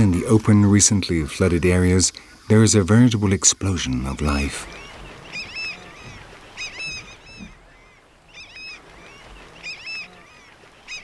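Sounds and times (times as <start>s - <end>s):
faint hiss: 0.0s - 11.0s
bird honking calls: 4.2s - 11.0s.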